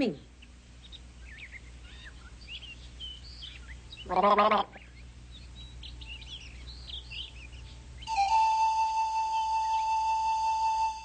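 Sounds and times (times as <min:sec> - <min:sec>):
small bird chirping: 0:00.0 - 0:08.4
steady flute note: 0:08.0 - 0:11.0.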